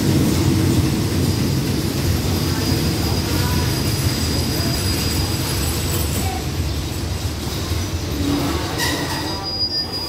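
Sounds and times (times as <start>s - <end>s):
train wheels rumbling on rail: 0.0s - 10.0s
thin high squeal: 8.2s - 10.0s.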